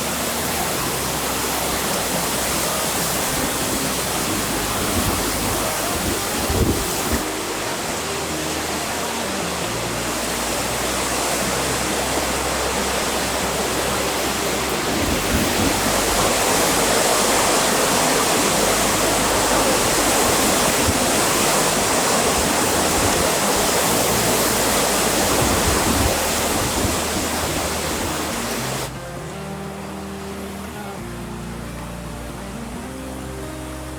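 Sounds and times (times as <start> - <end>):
wind blowing over microphone: 3.2 - 7.3, 13.5 - 28.9.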